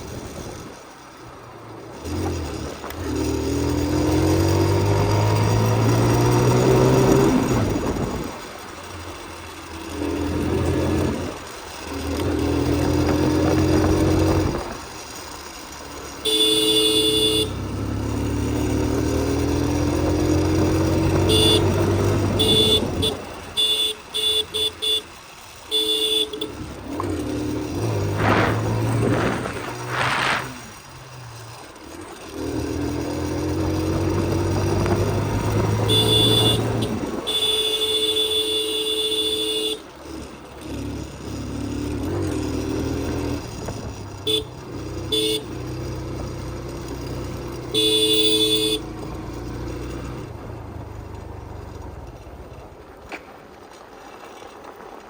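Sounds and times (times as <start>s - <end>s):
motorcycle engine accelerating: 0.0s - 38.4s, 39.2s - 55.0s
short horn toots: 16.2s - 17.6s, 21.2s - 25.1s, 35.4s - 39.9s, 47.6s - 49.0s
horn blast: 35.6s - 39.8s, 47.7s - 48.9s.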